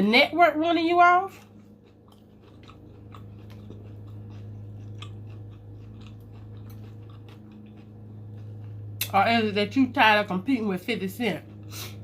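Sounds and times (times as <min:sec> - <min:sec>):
low electrical hum: 0:00.0 - 0:12.0
chewing crispy fried food: 0:00.1 - 0:12.0.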